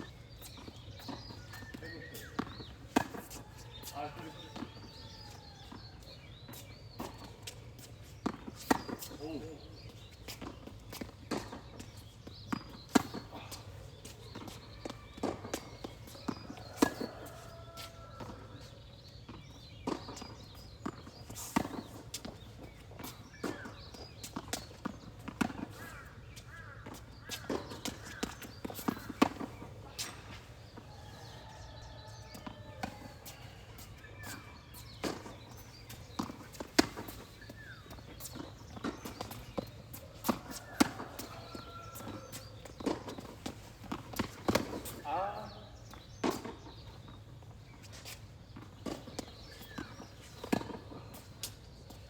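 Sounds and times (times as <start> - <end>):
footsteps on court: 0.0 - 52.0
tennis ball bouncing: 0.4 - 5.8, 10.3 - 18.7, 19.3 - 30.8, 32.4 - 45.0, 48.0 - 51.5.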